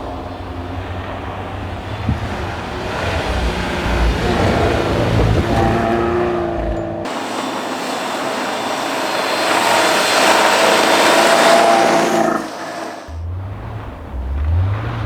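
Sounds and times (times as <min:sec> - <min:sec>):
faint car engine: 0:00.0 - 0:15.0
tyres hissing on snow: 0:07.1 - 0:13.2.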